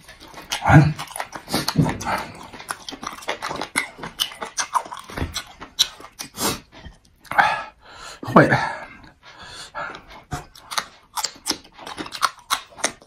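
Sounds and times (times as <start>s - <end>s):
wet chewing and lip-smacking: 0.0s - 7.4s, 9.0s - 13.0s.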